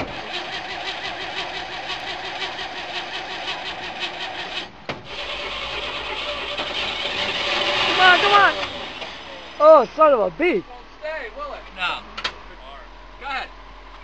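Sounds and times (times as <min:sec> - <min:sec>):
engine cranking by starter: 0:00.0 - 0:10.3.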